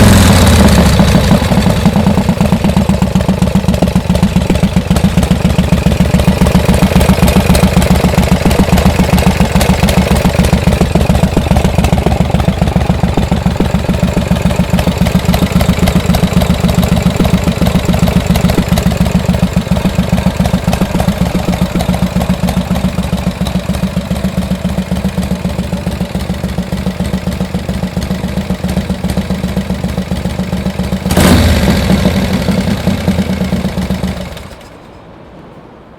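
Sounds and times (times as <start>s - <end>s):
engine revving burst: 0.0s - 3.0s, 31.0s - 34.4s
motorcycle engine idling: 0.0s - 34.7s.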